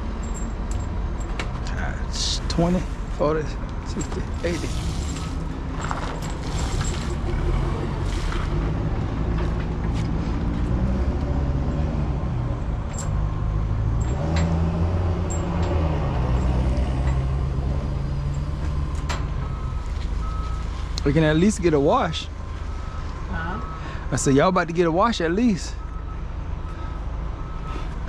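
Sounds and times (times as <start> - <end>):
heavy engine running: 0.0 - 28.0
sharp metallic clicks and knocks: 12.8 - 17.5.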